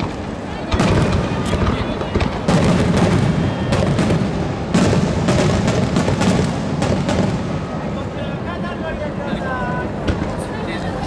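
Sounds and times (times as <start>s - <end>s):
firework shells bursting: 0.0s - 7.8s.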